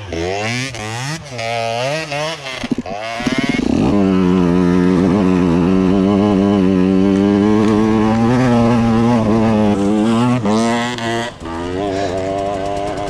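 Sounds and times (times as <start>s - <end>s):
motorcycle engine revving high: 0.0s - 13.0s.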